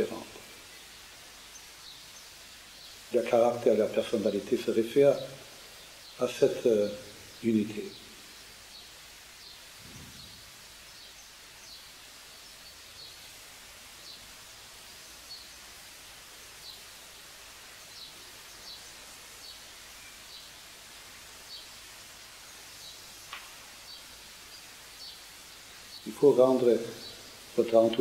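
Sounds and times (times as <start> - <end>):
steady background hiss: 0.0 - 28.0
faint bird chirps: 5.1 - 13.4, 17.8 - 20.6.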